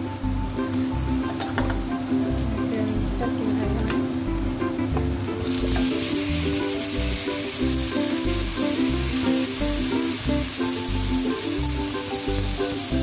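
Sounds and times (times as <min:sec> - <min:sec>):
background music with steady beat: 0:00.0 - 0:13.0
food sizzling in hot oil: 0:00.0 - 0:13.0
spatula moving food in a wok: 0:04.6 - 0:13.0.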